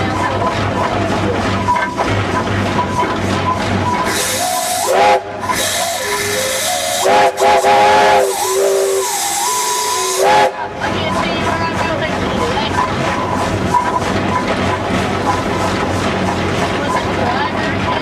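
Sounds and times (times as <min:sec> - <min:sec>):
steam hissing: 0:04.0 - 0:10.7
steam whistle blasts: 0:04.1 - 0:10.6.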